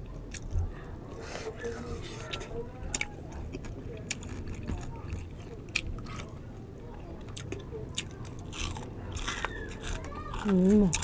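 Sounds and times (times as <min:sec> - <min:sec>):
chewing crispy pork with crunches: 0:00.0 - 0:11.0.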